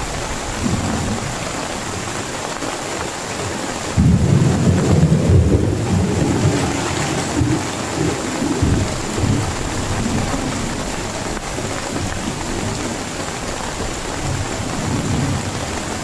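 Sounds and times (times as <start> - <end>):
loud rolling thunder: 0.0 - 1.9, 3.9 - 11.2, 14.2 - 16.0
heavy rain: 0.0 - 16.0.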